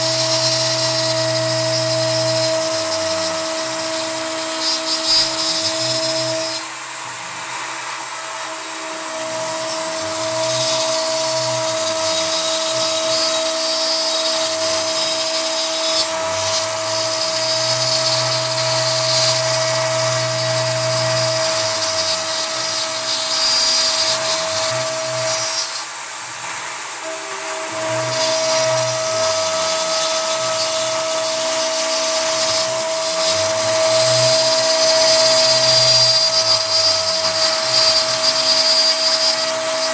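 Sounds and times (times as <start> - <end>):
stepper motors humming: 0.0 - 6.7
end mill cutting wood: 0.0 - 6.8
router spindle whine: 0.0 - 39.9.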